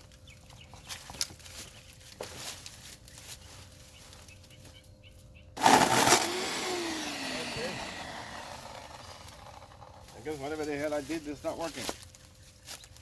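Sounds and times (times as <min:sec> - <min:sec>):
electric chainsaw starting: 0:05.6 - 0:10.6.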